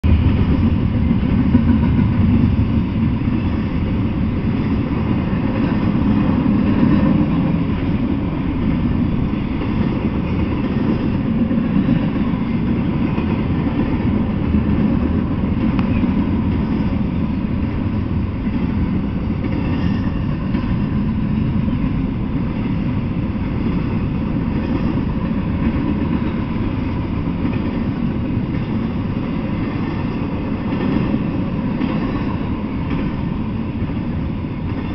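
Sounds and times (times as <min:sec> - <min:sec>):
steel wheels on rails: 0:00.0 - 0:34.9.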